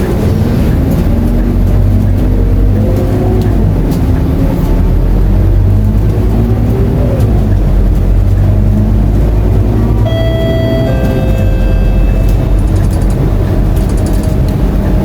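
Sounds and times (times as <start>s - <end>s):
bus diesel engine drone: 0.0s - 15.0s
ringing chime: 10.1s - 12.9s.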